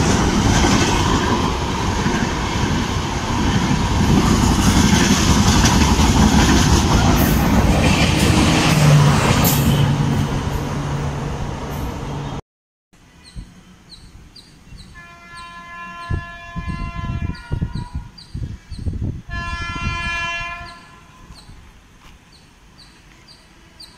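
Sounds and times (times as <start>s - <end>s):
train passing with rail clatter: 0.0s - 12.4s, 19.2s - 23.9s
distant train horn: 14.9s - 18.1s, 19.3s - 21.5s.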